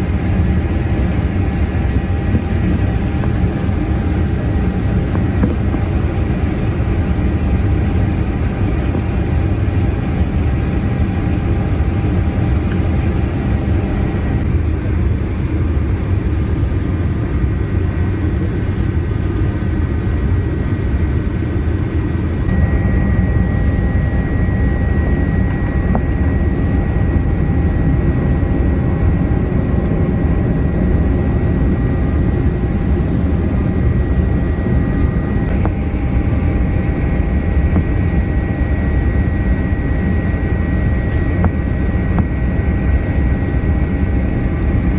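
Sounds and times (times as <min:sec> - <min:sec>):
airliner cabin engine rumble: 0:00.0 - 0:44.9
faint steady tones: 0:19.4 - 0:44.9.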